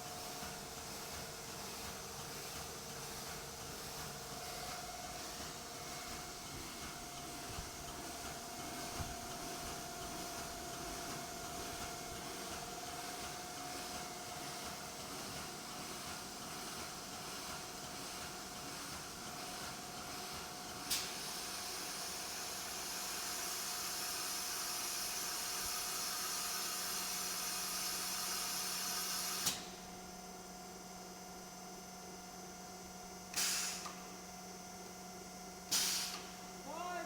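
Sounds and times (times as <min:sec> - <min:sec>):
loud hydraulic hiss: 0:33.4 - 0:33.9, 0:35.7 - 0:36.3.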